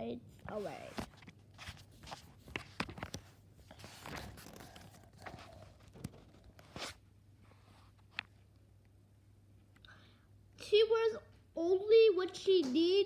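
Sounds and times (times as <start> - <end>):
book pages rustling: 0.4 - 7.0.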